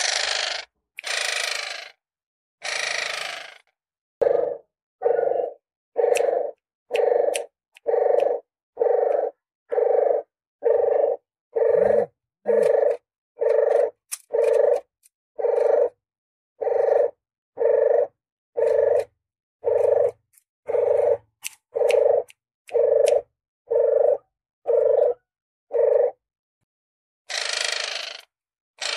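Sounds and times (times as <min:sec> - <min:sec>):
dove cooing: 0:04.2 - 0:16.0, 0:16.6 - 0:26.2.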